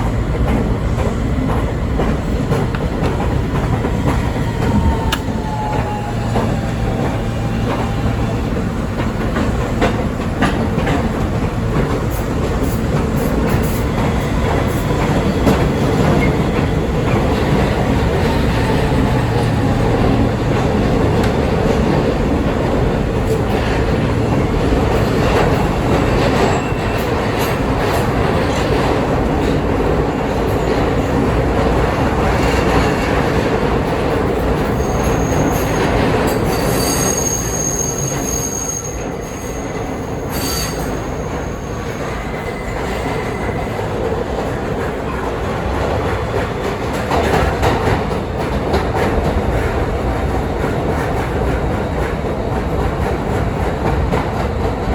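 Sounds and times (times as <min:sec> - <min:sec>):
subway train rail clatter: 0:00.0 - 0:54.9
high-pitched wheel squeal: 0:34.8 - 0:43.8.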